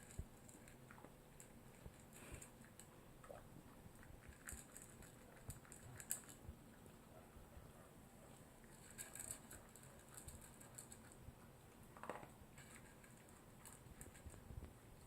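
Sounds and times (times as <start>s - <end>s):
dog chewing dry kibble: 3.7s - 7.1s, 8.6s - 15.0s.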